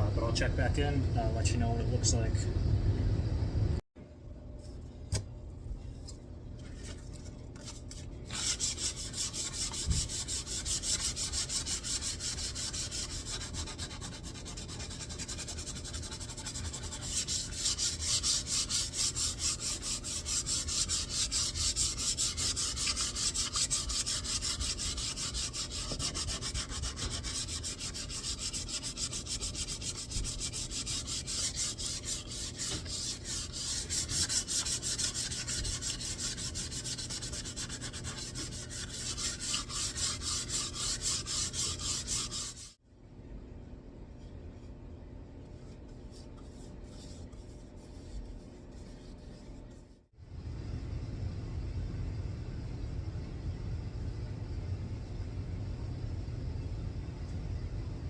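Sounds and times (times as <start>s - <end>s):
wood being sanded: 8.4s - 42.8s.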